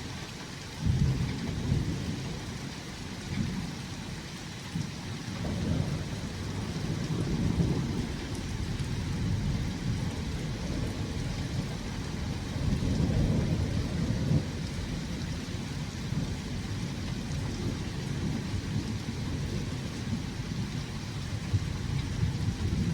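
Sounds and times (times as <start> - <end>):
steady rain: 0.0 - 22.9
rolling thunder: 5.4 - 22.9.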